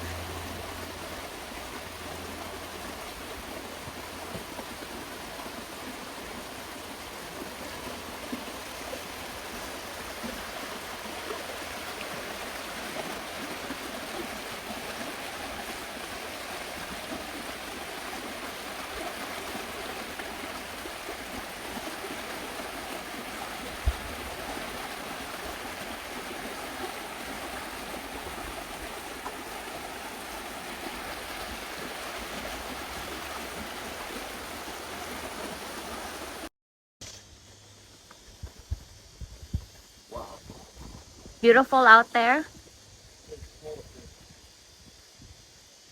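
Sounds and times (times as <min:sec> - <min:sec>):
river water rushing over rapids: 0:00.0 - 0:36.5.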